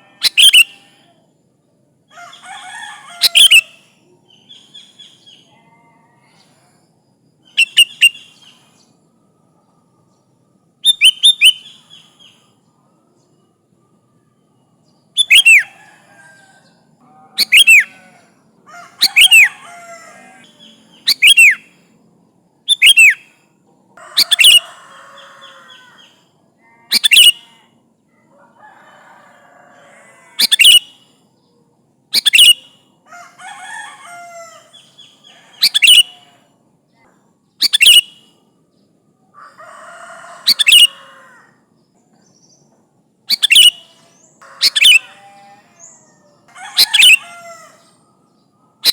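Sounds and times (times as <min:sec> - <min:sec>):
bird calling sharply: 0:00.2 - 0:00.8, 0:17.4 - 0:18.0, 0:26.9 - 0:27.5, 0:30.4 - 0:30.9, 0:35.5 - 0:36.2, 0:43.3 - 0:43.9
soft bird chattering: 0:00.2 - 0:00.9, 0:07.5 - 0:08.6, 0:15.2 - 0:15.8, 0:17.3 - 0:18.2, 0:19.0 - 0:21.6, 0:24.1 - 0:24.6, 0:26.9 - 0:27.6, 0:30.4 - 0:30.9, 0:32.2 - 0:32.7, 0:34.7 - 0:36.3, 0:37.6 - 0:38.2, 0:40.4 - 0:41.0, 0:43.3 - 0:46.1, 0:46.7 - 0:47.4.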